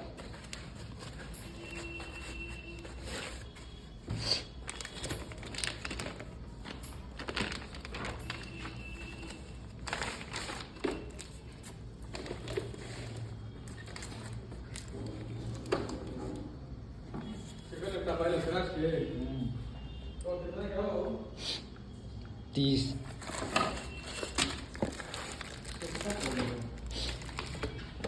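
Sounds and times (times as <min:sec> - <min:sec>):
plastic wrap crinkling: 0:00.0 - 0:16.2, 0:23.1 - 0:28.0.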